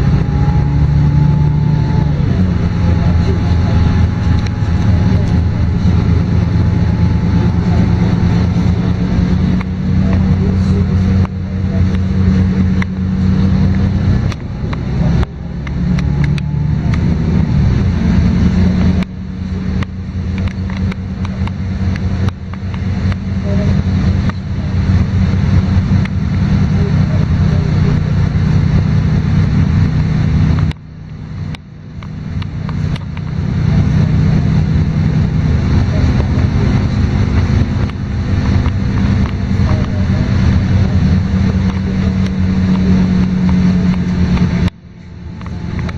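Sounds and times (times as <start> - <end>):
light interior rattles: 0.0 - 15.3
bus diesel engine droning: 0.0 - 45.9.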